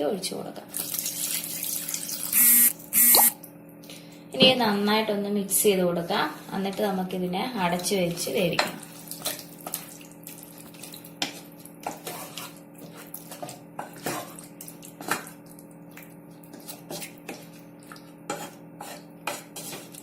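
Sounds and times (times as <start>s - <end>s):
spoon scraping a cooking pot: 11.8s - 14.4s, 18.3s - 20.0s.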